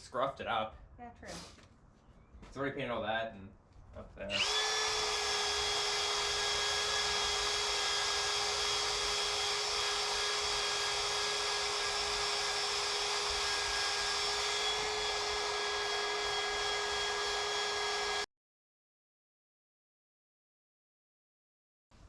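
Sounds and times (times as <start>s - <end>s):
power tool motor whine: 4.3s - 18.3s.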